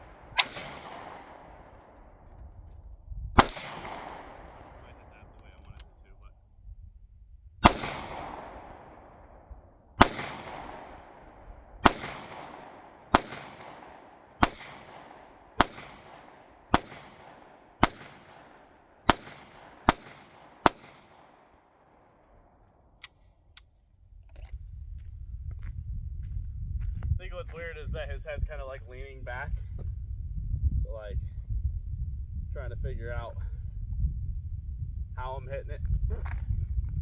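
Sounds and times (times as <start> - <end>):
gunshots with echo: 0.0 - 2.2, 3.4 - 5.6, 7.6 - 22.4.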